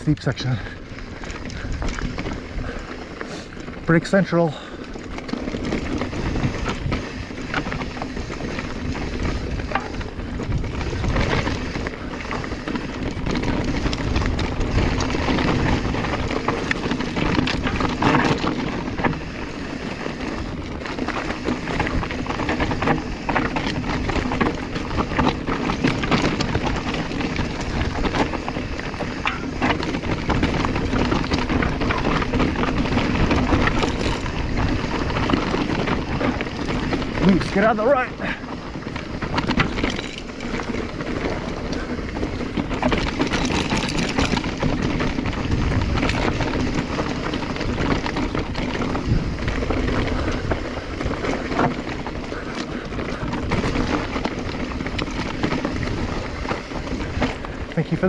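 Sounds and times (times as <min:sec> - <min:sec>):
bike knocking and rattling: 0:00.0 - 0:58.0
tyres scrabbling over loose rock: 0:00.0 - 0:58.0
wind buffeting microphone: 0:00.0 - 0:58.0.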